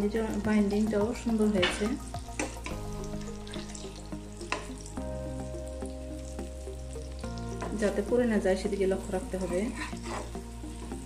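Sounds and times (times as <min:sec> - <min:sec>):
fish sizzling in oil: 0:00.0 - 0:11.0
metal spatula scraping pan: 0:09.3 - 0:10.4.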